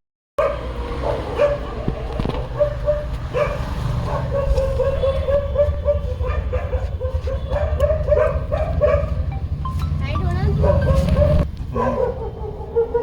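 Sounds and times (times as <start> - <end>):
steady low rumble: 1.8 - 11.6.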